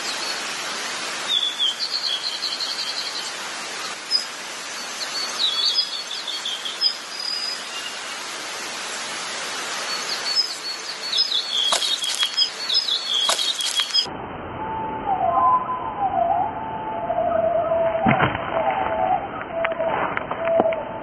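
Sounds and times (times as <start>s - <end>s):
steady outdoor hiss: 0.0s - 15.4s
small birds chirping: 1.3s - 8.3s, 9.7s - 14.1s
sharp clicks: 11.6s - 14.1s.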